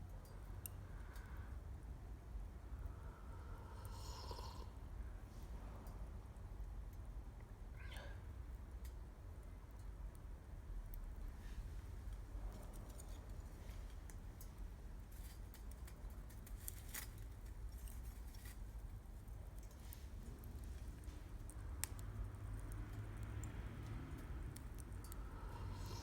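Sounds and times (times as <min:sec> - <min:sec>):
low steady rumble: 0:00.0 - 0:09.4, 0:17.5 - 0:26.0
wood campfire crackling: 0:08.8 - 0:26.0.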